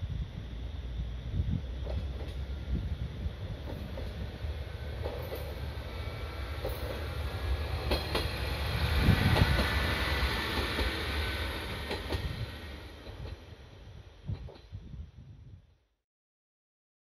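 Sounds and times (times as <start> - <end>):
diesel train engine rumble: 0.0 - 15.6
wheels clacking over rail joints: 3.6 - 13.6.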